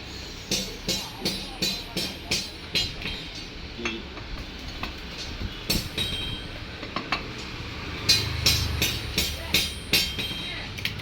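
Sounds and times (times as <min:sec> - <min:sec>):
metal tools clinking: 0:02.5 - 0:11.0.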